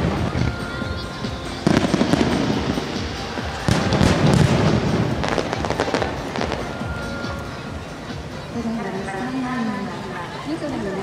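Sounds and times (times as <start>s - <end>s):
fireworks bursting: 0.0s - 8.5s
fireworks crackling: 0.0s - 11.0s.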